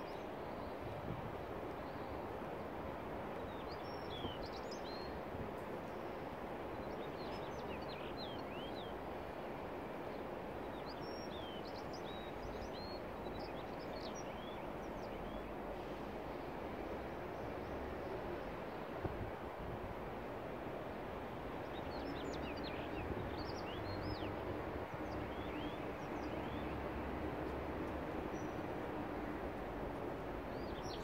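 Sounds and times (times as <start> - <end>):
outdoor background hiss: 0.0 - 31.0.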